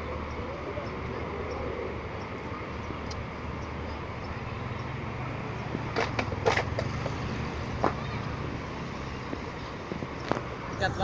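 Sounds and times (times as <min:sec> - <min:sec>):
sharp clicks and knocks: 0:05.7 - 0:07.2.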